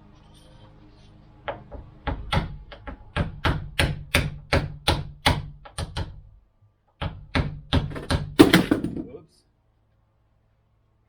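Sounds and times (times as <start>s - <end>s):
hammer tapping on a door: 1.5s - 6.3s, 7.0s - 9.0s.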